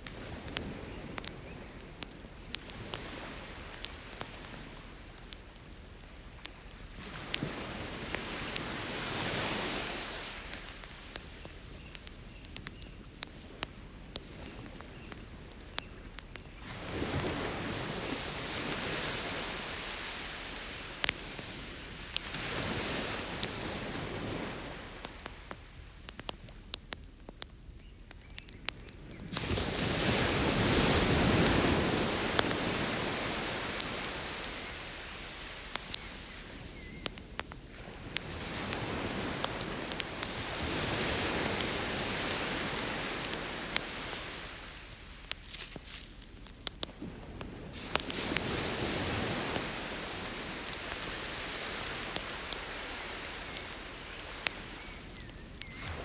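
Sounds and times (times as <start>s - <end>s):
wood campfire crackling: 0.0s - 56.0s
ocean waves breaking: 7.0s - 11.3s, 16.6s - 25.5s, 29.3s - 46.1s, 46.8s - 56.0s.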